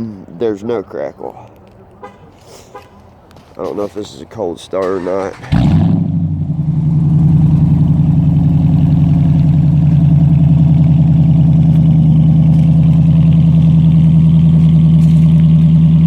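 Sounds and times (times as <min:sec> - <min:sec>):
loud engine idling: 0:04.8 - 0:16.0.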